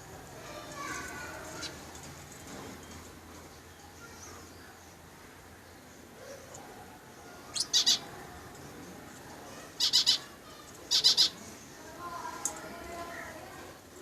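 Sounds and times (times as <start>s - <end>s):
parrot calling: 7.5s - 8.1s, 9.8s - 11.4s.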